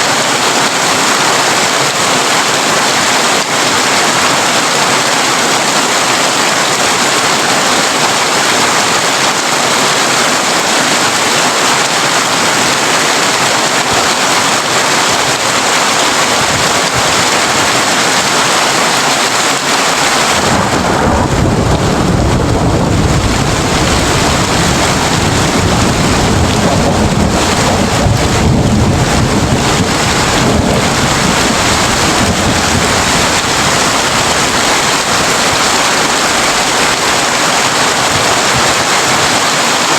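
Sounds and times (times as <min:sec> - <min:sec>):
heavy rain on a tin roof: 0:00.0 - 0:39.9
thunder rumbling: 0:19.3 - 0:38.8.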